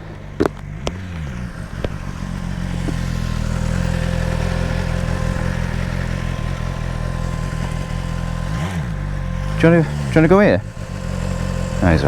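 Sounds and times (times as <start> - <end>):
sharp clicks and clunks: 0.0 - 3.3
motorcycle engine idling: 0.0 - 12.0.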